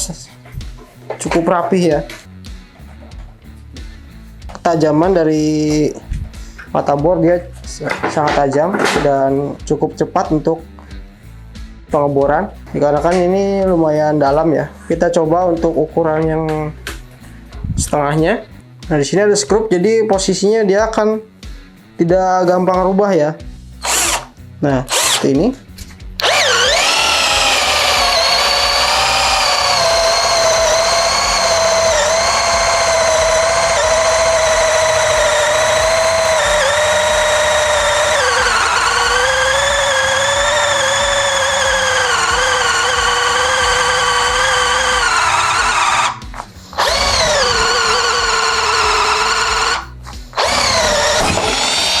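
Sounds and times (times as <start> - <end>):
electric drill boring into wood: 23.8 - 24.3, 24.9 - 25.3, 26.2 - 52.0.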